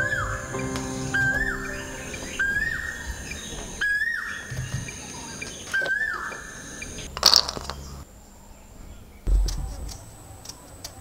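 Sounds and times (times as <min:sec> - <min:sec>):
bird calling: 0:00.0 - 0:07.1.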